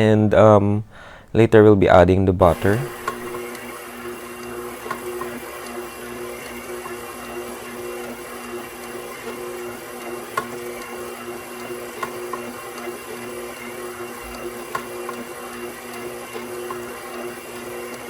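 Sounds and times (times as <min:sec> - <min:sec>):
stand mixer motor humming: 0:02.5 - 0:18.0
dough hook clicks: 0:03.0 - 0:18.0.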